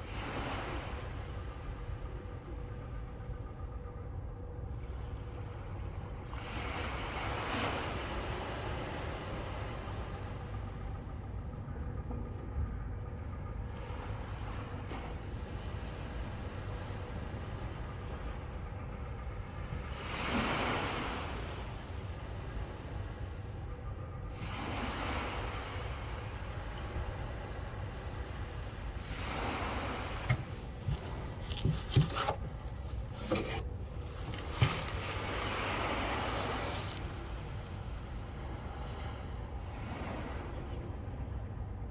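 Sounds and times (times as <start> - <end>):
faint steady hum: 0.0 - 41.9
water noise: 27.9 - 41.0
waves rushing: 27.9 - 41.2
rubbing sounds: 30.1 - 37.4.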